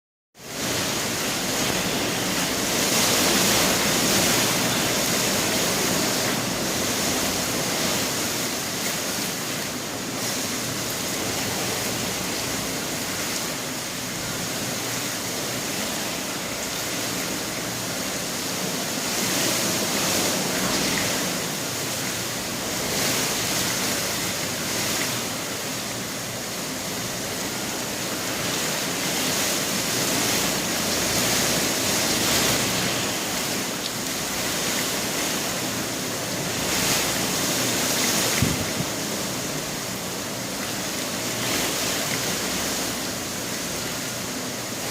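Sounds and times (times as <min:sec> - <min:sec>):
storm wind blowing: 0:27.1 - 0:40.4.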